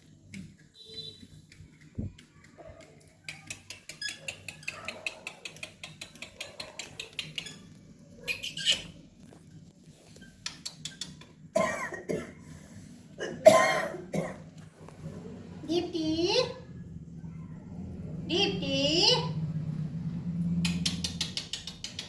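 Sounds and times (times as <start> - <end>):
parrot clicking: 1.5 - 7.6, 20.6 - 22.0
parrot squawking: 6.4 - 9.0.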